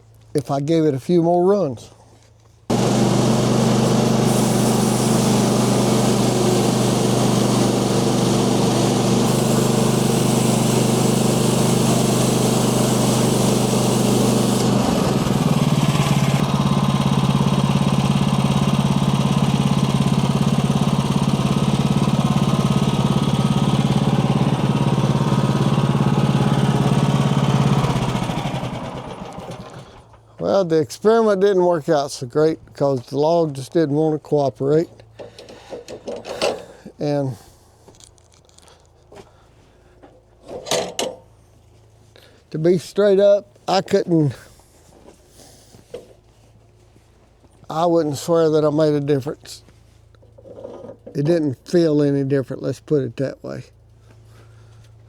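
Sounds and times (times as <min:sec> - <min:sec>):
band saw cutting log: 0:02.7 - 0:30.0
sawmill engine running: 0:02.7 - 0:30.2.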